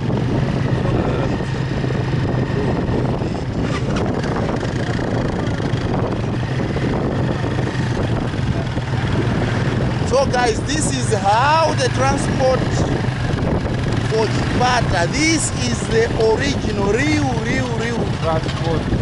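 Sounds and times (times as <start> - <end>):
motorbike engine running: 0.0 - 19.0
road and wind noise: 0.0 - 19.0.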